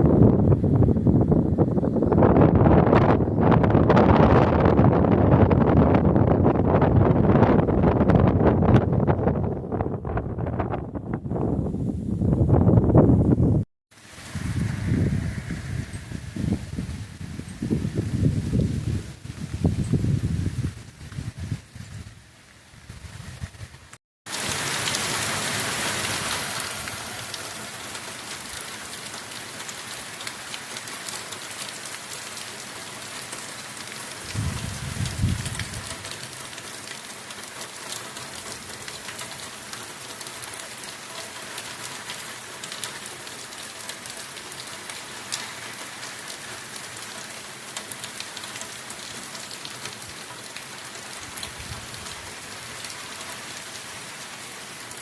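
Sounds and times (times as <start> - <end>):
heavy rain hissing: 13.9 - 55.0
low rumble: 14.2 - 18.8.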